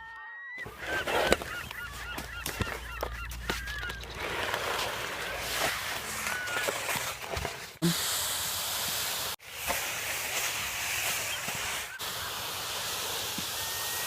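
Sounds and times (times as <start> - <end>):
steady outdoor hiss: 7.8 - 14.0
faint high whistles: 10.9 - 14.0.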